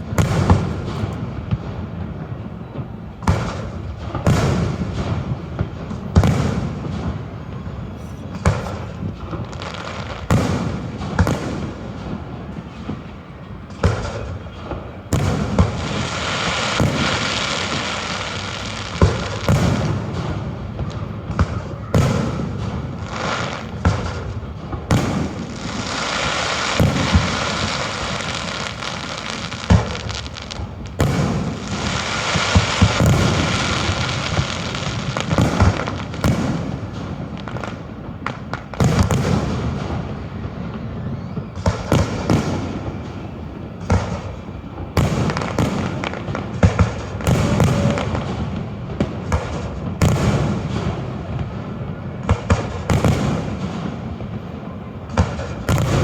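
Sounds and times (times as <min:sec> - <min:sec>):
steady rushing hiss: 0:00.0 - 0:41.0
fireworks booming: 0:00.0 - 0:56.0.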